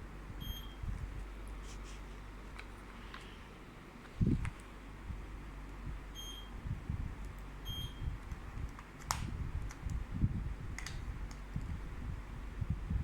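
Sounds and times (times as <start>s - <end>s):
short electronic beeps: 0.4s - 0.8s, 6.2s - 6.5s, 7.6s - 8.0s.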